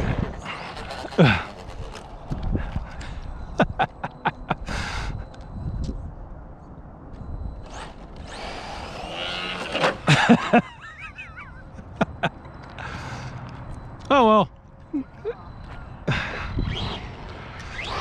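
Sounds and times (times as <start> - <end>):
rc car rushing by: 0.0 - 2.3, 7.6 - 10.5, 16.5 - 18.0
wavering motor whine: 0.0 - 14.2, 14.8 - 18.0.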